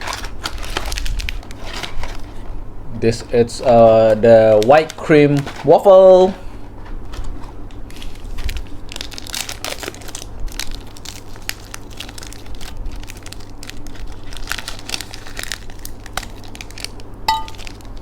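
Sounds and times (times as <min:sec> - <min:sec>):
waffle snack being crushed: 0:07.2 - 0:18.0.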